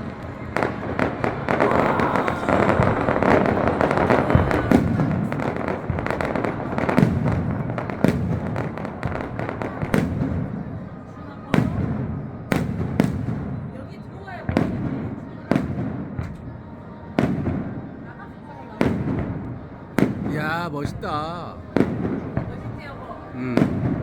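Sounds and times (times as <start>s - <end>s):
firework crackling: 0.0s - 10.8s.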